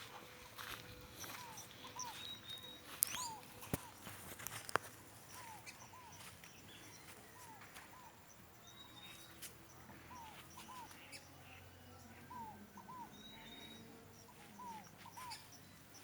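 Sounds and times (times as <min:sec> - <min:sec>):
high bird chirps: 0:00.6 - 0:04.1, 0:12.3 - 0:16.0
bird whistling: 0:01.2 - 0:03.4, 0:10.1 - 0:11.2, 0:12.3 - 0:15.6.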